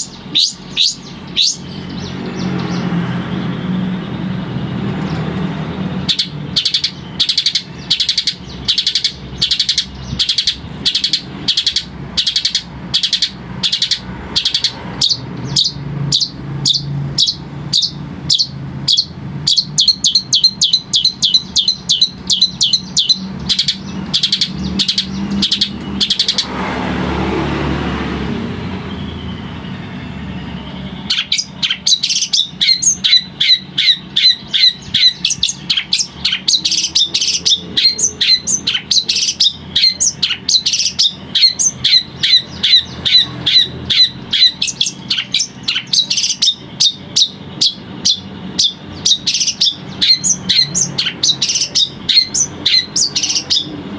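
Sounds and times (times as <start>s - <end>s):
bird singing sharp repeated notes: 0.0s - 53.9s.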